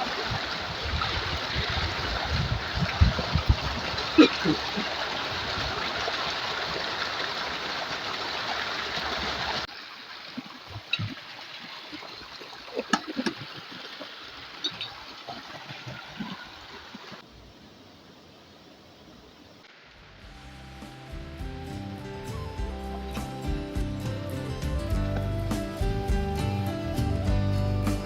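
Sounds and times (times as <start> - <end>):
river water flowing: 0.0 - 21.1.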